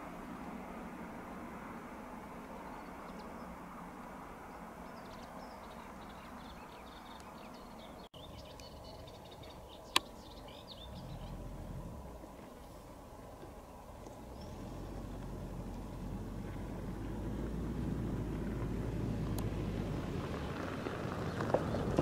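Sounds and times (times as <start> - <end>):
small birds chirping: 2.4 - 3.6, 4.5 - 17.2
distant train rumble: 8.2 - 22.0.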